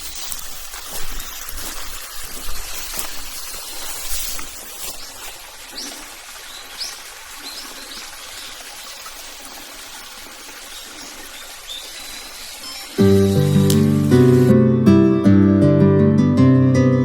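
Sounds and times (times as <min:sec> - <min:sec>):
water trickling: 0:00.0 - 0:14.5
bird chirps: 0:10.8 - 0:13.9.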